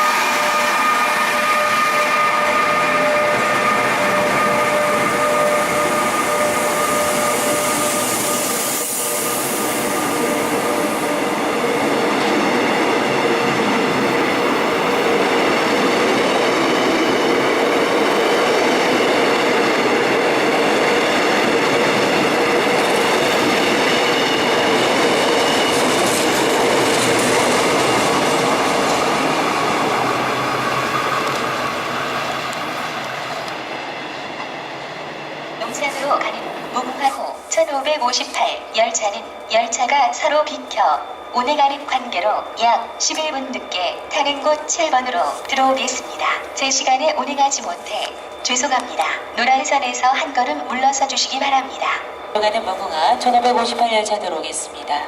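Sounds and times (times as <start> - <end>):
train wheels rumbling on rails: 0.0 - 54.9
train clatter: 10.0 - 37.3.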